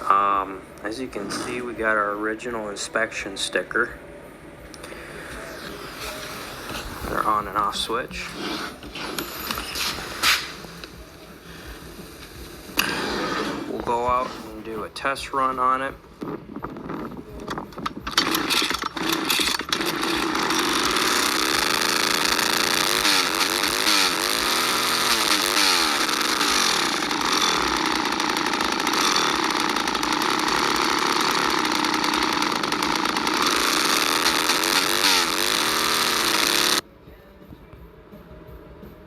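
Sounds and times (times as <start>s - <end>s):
chainsaw starting and revving: 1.0s - 2.1s, 12.7s - 14.6s, 17.8s - 36.8s.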